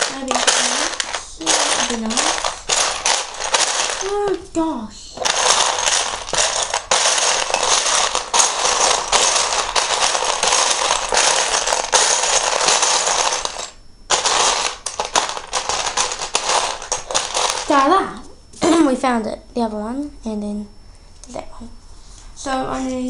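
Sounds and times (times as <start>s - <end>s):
plastic bricks clattering: 0.0s - 4.5s, 5.2s - 17.9s.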